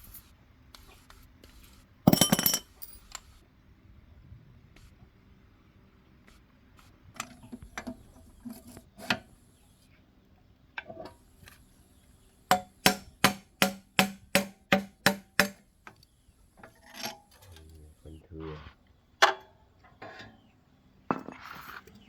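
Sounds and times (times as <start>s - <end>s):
tools knocking and clinking: 2.1s - 3.2s, 12.5s - 15.6s
quick hammer-like taps: 12.5s - 15.6s.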